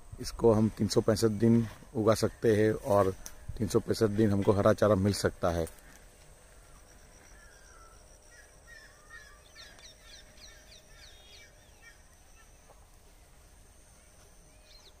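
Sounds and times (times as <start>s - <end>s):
birds chirping and whistling: 5.9s - 12.8s, 14.0s - 15.0s.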